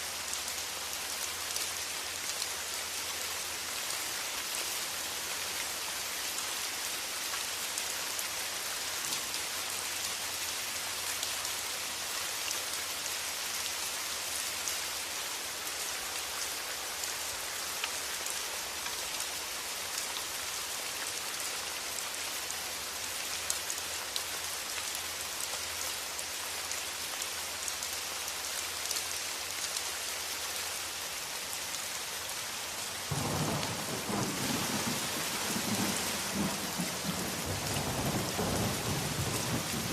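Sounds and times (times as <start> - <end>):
steady rain falling: 0.0 - 39.9
low rumble of thunder: 33.1 - 39.9.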